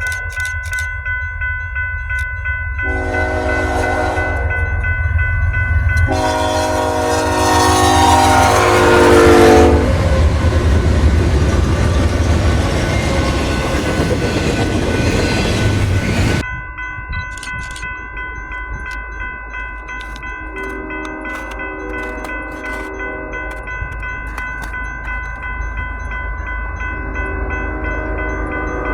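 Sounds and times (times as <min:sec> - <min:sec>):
rail noise with clicks: 0:00.0 - 0:28.9
train rumbling by: 0:02.7 - 0:16.5, 0:20.1 - 0:28.9
locomotive air horn chord: 0:02.8 - 0:04.8, 0:06.0 - 0:10.4, 0:20.5 - 0:23.6, 0:27.0 - 0:28.9.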